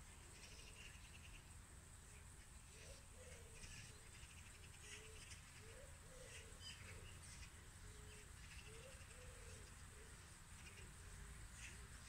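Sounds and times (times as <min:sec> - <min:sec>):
low bird call: 0:02.7 - 0:10.9.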